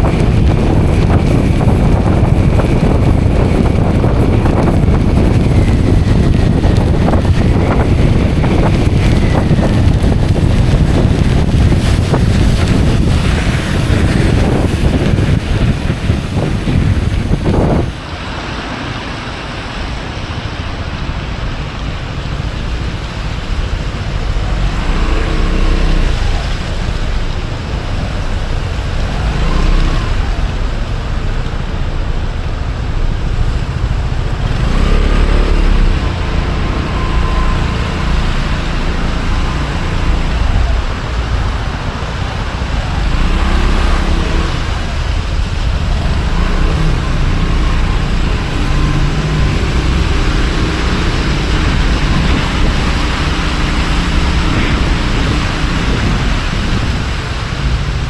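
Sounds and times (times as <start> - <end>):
scooter engine accelerating: 0.0 - 17.9, 23.7 - 31.0, 32.8 - 58.0
wind rushing over microphone: 0.0 - 58.0.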